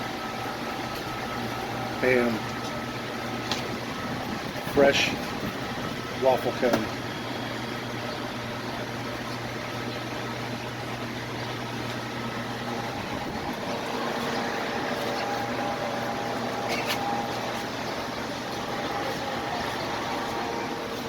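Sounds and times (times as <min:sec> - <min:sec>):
steady background hum and hiss: 0:00.0 - 0:21.0.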